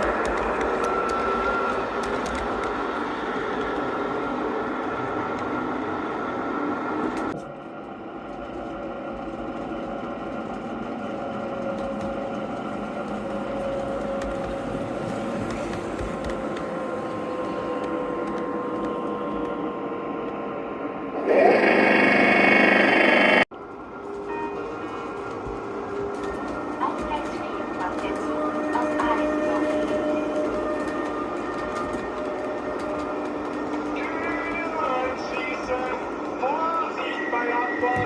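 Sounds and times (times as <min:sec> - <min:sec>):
model train motors whirring: 0:21.2 - 0:23.4
loud steady high tones: 0:21.2 - 0:23.5.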